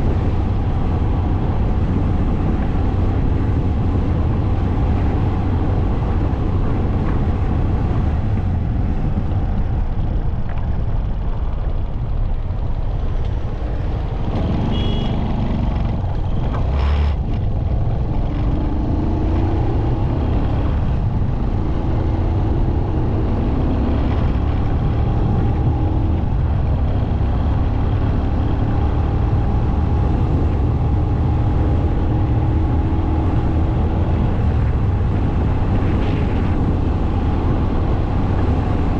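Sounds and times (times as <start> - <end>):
motorcycle engine: 0.0 - 38.9
wind rush over microphone: 0.0 - 38.9.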